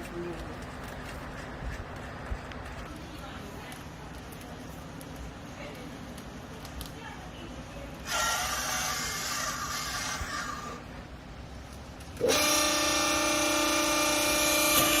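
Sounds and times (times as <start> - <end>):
machine hum with whine: 10.2 - 15.0.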